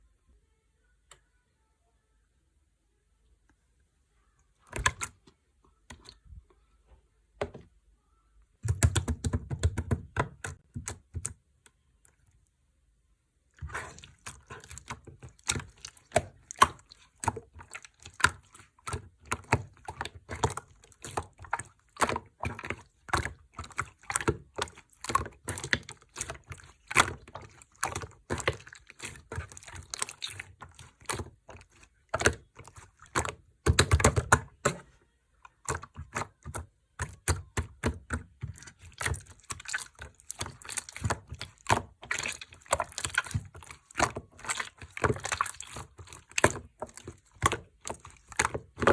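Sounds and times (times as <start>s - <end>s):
slime squished by hand: 13.5s - 48.9s.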